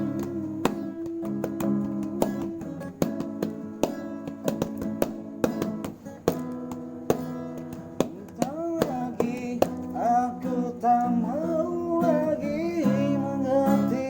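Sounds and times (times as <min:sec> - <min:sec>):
person singing pop ballad: 0:00.0 - 0:03.4, 0:08.3 - 0:14.0
acoustic guitar strumming: 0:00.0 - 0:14.0.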